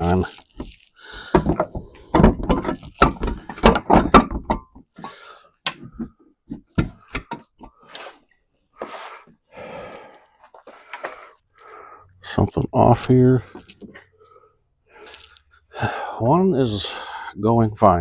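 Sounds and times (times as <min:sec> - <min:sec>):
rustling: 0:00.0 - 0:04.3
plastic clicks and knocks: 0:05.6 - 0:07.7.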